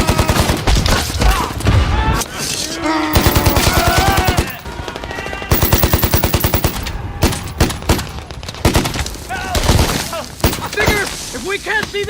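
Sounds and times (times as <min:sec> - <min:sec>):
automatic gunfire bursts: 0:05.5 - 0:08.1.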